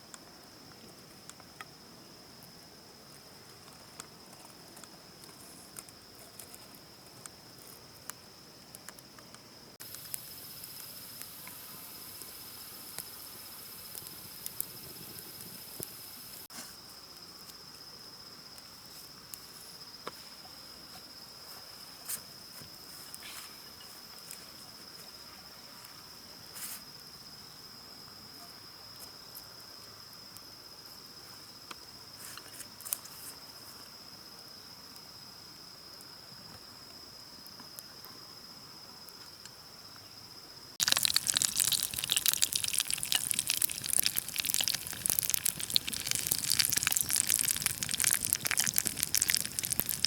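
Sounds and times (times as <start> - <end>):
insects trilling: 9.8 - 18.3, 40.8 - 50.0
high insect hiss: 9.8 - 35.9, 39.2 - 50.0.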